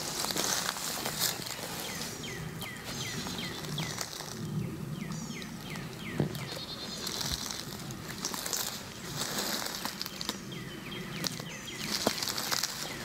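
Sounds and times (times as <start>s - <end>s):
footsteps in leaf litter: 0.0s - 13.0s
twig snapping: 5.7s - 10.4s, 11.2s - 13.0s.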